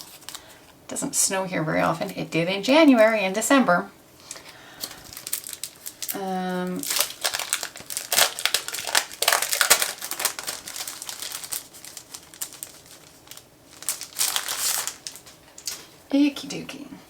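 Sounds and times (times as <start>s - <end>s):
packaging crinkling: 0.0s - 0.8s, 4.2s - 16.0s.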